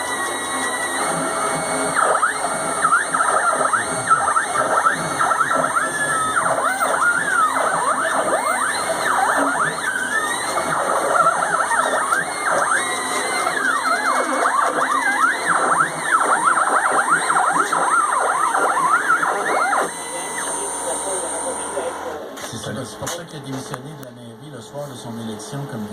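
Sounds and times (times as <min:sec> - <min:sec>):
stepper motors whining: 0:00.0 - 0:24.1.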